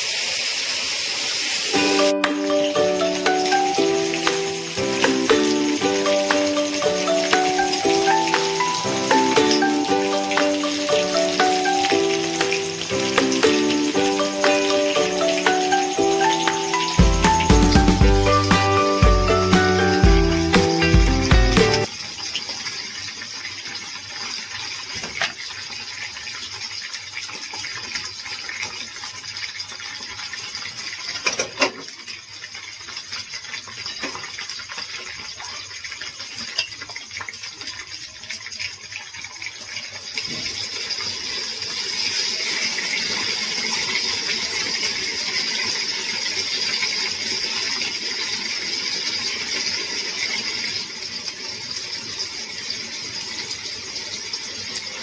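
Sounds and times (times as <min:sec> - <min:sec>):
chicken sizzling in a pan: 0:00.0 - 0:17.4, 0:39.5 - 0:55.0.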